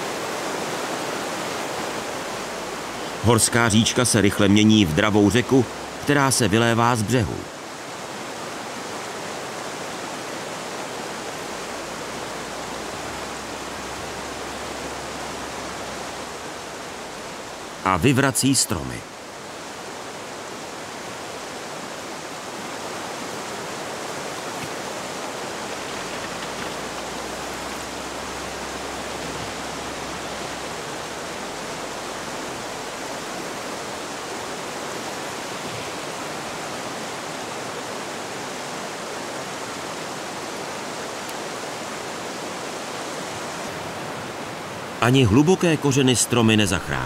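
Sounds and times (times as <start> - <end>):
stream water rushing: 0.0 - 47.0.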